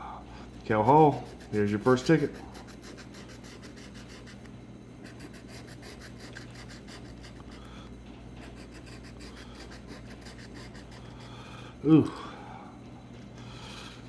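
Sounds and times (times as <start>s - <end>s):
scratching lottery ticket: 0.6s - 7.8s, 8.4s - 11.4s.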